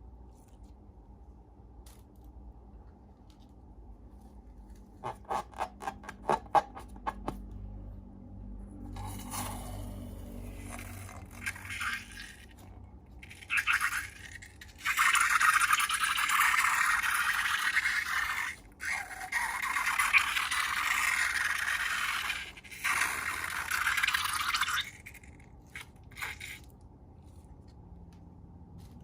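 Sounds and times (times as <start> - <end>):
slime being mixed by hand: 8.8 - 29.0.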